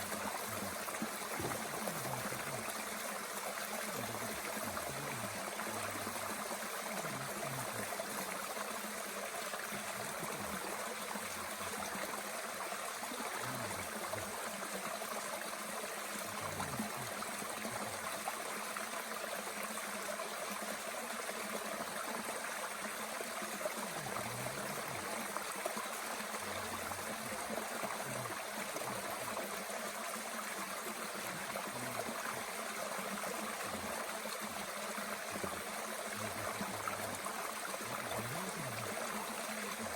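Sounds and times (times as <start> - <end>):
stream gurgling: 0.0 - 39.9.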